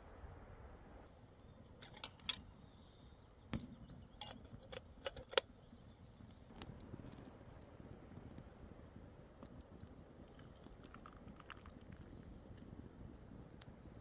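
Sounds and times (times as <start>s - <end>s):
cookware clinking: 1.8s - 2.4s, 4.2s - 5.4s.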